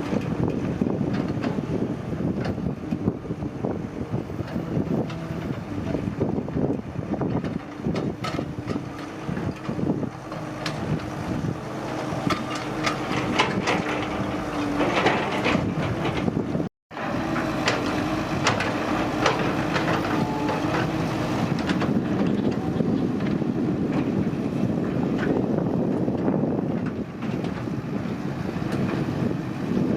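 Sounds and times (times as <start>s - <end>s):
excavator diesel engine running: 0.0s - 29.9s
clanks and knocks: 7.2s - 11.1s, 12.2s - 24.2s.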